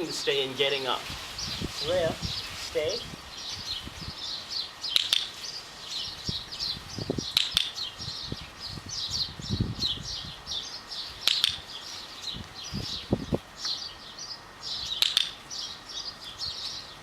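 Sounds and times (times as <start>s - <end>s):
small birds chirping: 0.0s - 17.0s
sharp clicks: 4.9s - 5.3s, 7.3s - 7.9s, 11.2s - 11.7s, 14.9s - 15.4s.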